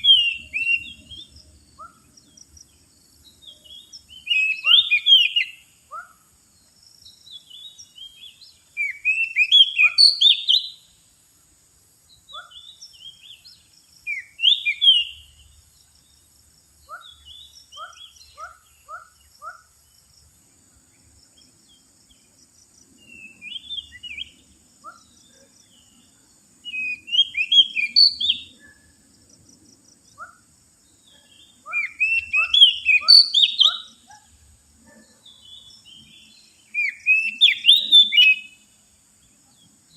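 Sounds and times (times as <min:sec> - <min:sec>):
bird singing whistled phrases: 0:00.0 - 0:02.0, 0:03.7 - 0:05.6, 0:07.4 - 0:10.8, 0:14.1 - 0:15.3, 0:23.0 - 0:24.4, 0:26.6 - 0:28.8, 0:31.2 - 0:34.0, 0:36.7 - 0:38.6.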